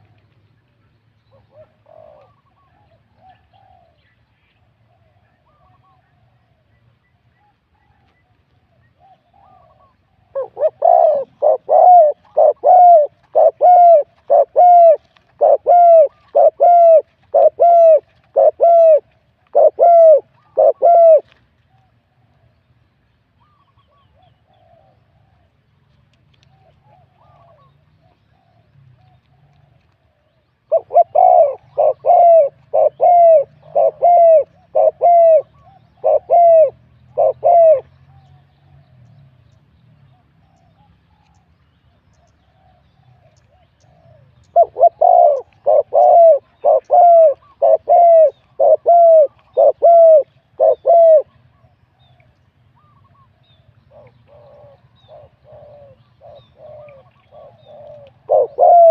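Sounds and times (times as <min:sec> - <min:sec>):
dove cooing: 0:01.3 - 0:04.0, 0:09.0 - 0:21.4, 0:26.5 - 0:29.8, 0:30.7 - 0:38.8, 0:42.6 - 0:52.1, 0:52.8 - 0:58.9.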